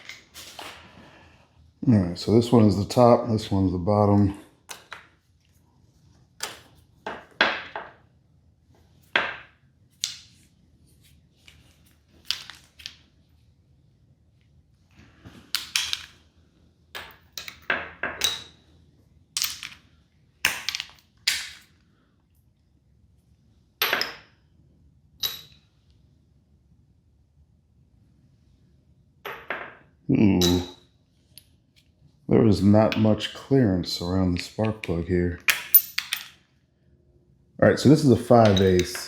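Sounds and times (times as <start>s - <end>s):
metal hand tools clinking: 38.4s - 39.0s.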